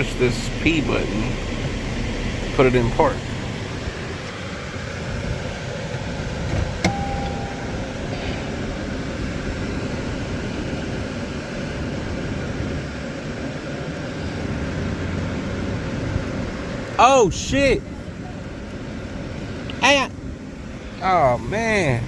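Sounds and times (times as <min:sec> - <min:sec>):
climate fan rushing: 0:00.0 - 0:22.0
short electronic beep: 0:06.9 - 0:08.2.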